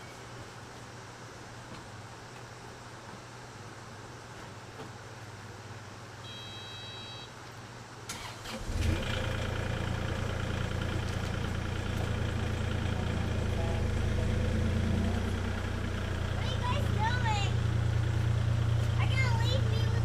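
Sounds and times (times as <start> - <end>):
short beep: 6.3 - 7.3
diesel engine starting and running: 8.1 - 20.0.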